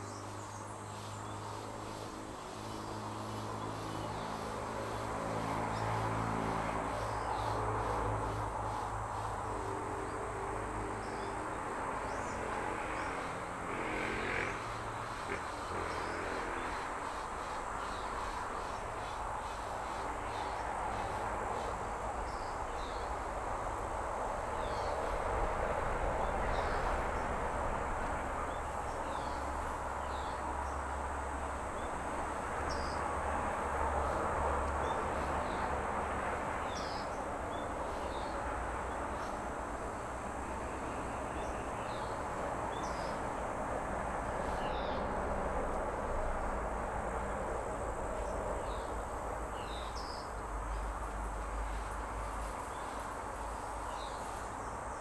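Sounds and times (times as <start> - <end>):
songbirds chirping: 0.0 - 25.5, 48.1 - 55.0
outdoor background hiss: 0.0 - 55.0.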